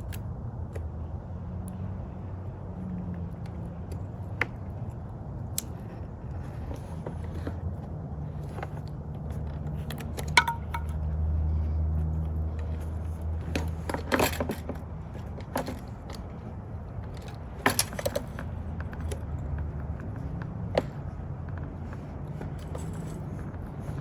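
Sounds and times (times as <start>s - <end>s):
bike chain clinking and rattling: 8.2s - 11.2s, 12.5s - 19.5s.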